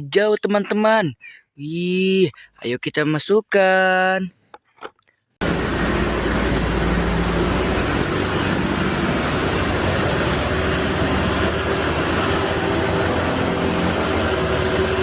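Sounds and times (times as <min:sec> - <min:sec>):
mechanical drone: 0:05.4 - 0:15.0.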